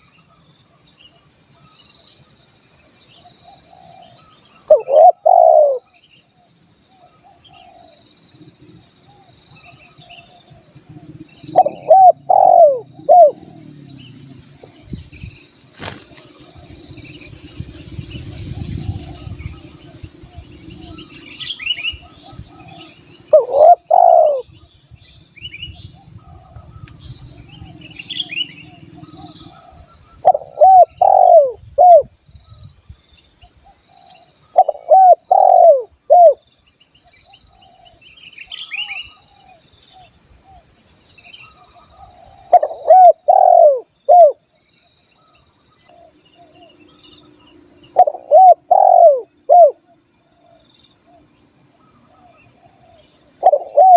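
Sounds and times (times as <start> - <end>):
steady high insect hum: 0.0 - 53.9
dove cooing: 3.6 - 5.9, 7.0 - 8.0, 10.9 - 14.8, 18.2 - 24.5, 27.7 - 32.1, 33.9 - 36.4, 41.7 - 44.4, 48.0 - 50.6, 52.2 - 53.9.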